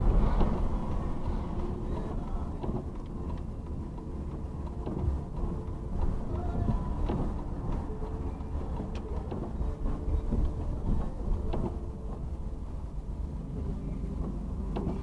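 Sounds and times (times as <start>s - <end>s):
engine and road noise rumble: 0.0s - 15.0s
light ticks: 2.0s - 9.6s.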